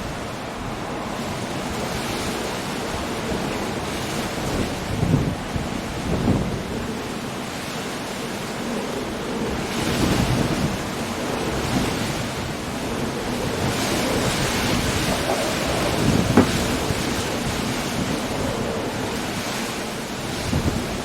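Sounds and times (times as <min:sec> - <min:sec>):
rain: 0:00.0 - 0:21.0
wind: 0:00.0 - 0:21.0
surf breaking against rocks: 0:09.5 - 0:21.0.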